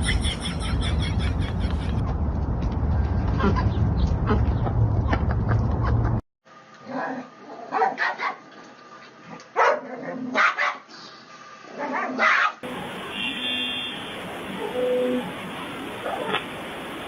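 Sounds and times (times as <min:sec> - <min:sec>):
dog barking: 0:07.0 - 0:08.4, 0:09.6 - 0:10.9, 0:11.8 - 0:12.6.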